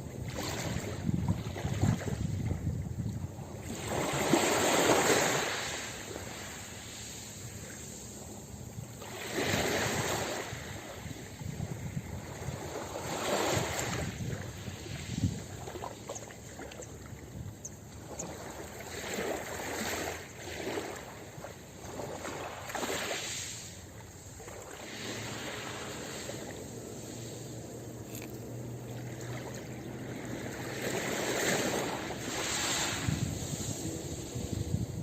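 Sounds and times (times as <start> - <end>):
ocean waves washing on beach: 0.0 - 35.0.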